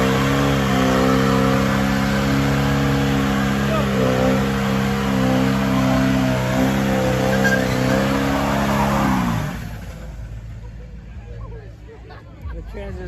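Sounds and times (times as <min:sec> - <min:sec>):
truck engine revving high: 0:00.0 - 0:10.6.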